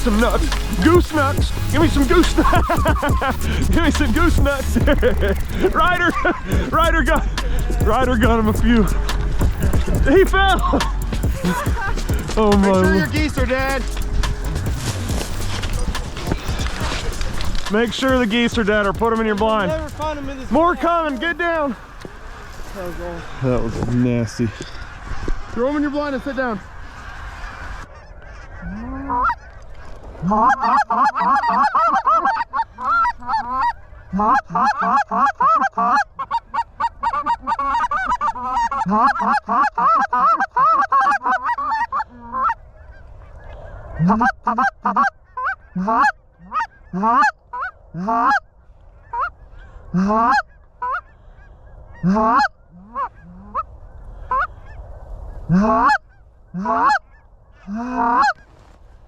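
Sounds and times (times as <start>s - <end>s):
goose honks and clucks: 27.0s - 54.8s, 55.4s - 58.8s.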